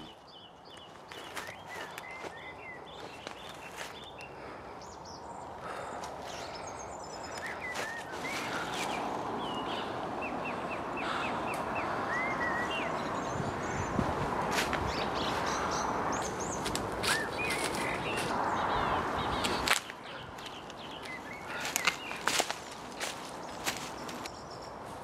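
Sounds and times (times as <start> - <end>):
small birds chirping: 0.0 - 25.0
footsteps crunching dry leaves: 0.7 - 4.1, 7.3 - 9.1, 14.4 - 15.6, 16.2 - 18.4, 19.3 - 25.0.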